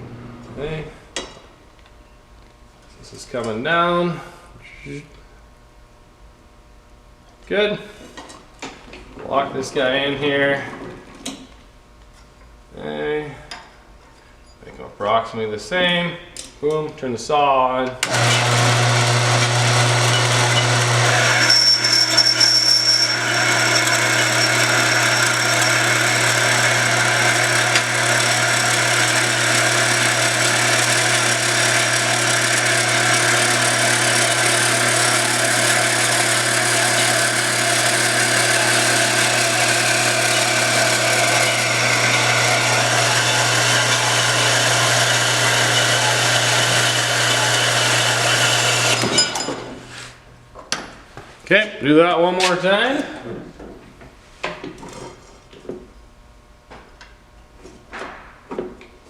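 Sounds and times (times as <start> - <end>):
power saw cutting steel: 18.0 - 49.5.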